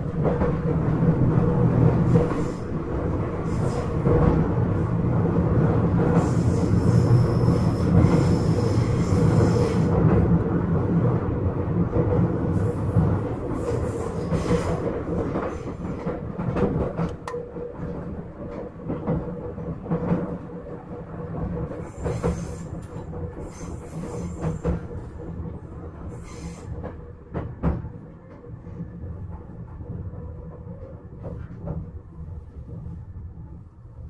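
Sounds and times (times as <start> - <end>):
train wheels rumbling on rail: 0.0 - 34.0
rail-joint clicks: 13.6 - 19.2.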